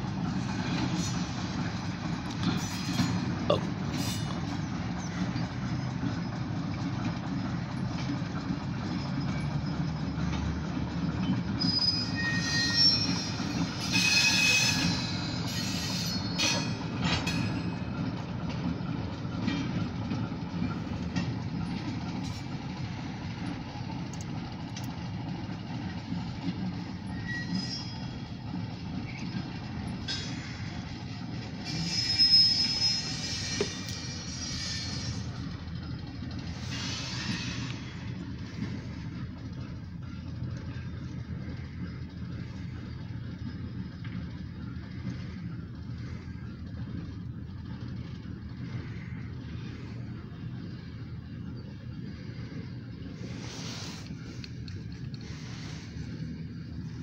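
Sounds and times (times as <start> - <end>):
diesel freight train rumbling: 0.0 - 57.0
high wheel squeal: 11.2 - 18.4, 26.7 - 57.0.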